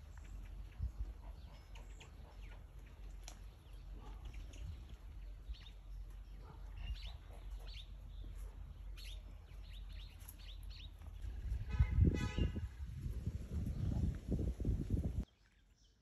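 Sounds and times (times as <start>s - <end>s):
small birds chirping: 0.0s - 11.7s, 13.3s - 16.0s.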